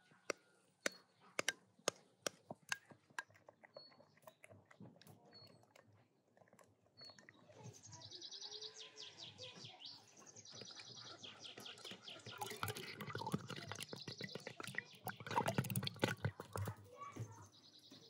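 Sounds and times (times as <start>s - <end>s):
small birds trilling: 6.9s - 18.0s.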